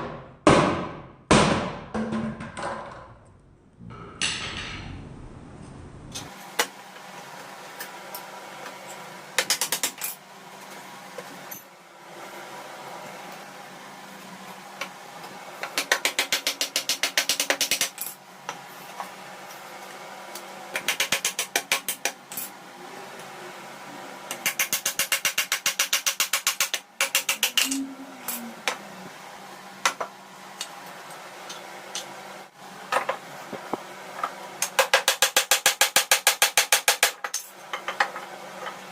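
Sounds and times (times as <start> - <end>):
steady background tone: 3.0 - 6.5.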